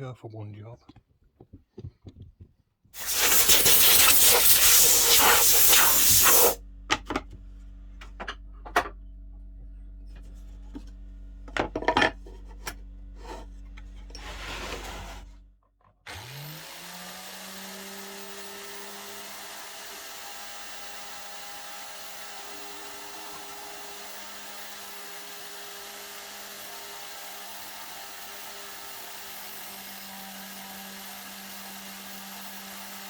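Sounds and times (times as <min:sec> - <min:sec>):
power tool motor spinning: 0:03.0 - 0:06.6, 0:16.1 - 0:33.0.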